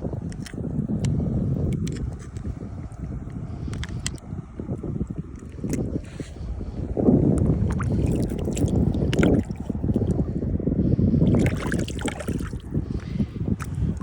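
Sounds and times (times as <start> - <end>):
wind buffeting microphone: 0.0 - 14.0
small clicks: 0.2 - 2.5.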